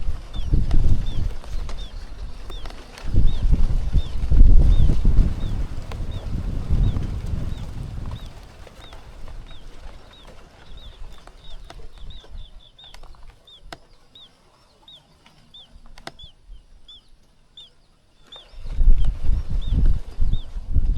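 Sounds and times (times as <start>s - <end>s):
small bird chirping: 0.3s - 20.6s.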